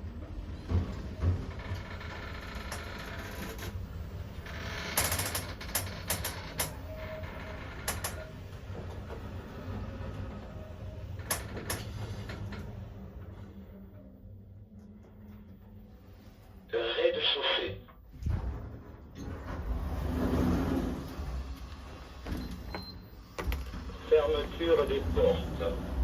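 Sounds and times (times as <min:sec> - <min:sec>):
elevator hum: 0:00.0 - 0:26.0
elevator clicks and rattles: 0:00.1 - 0:12.8.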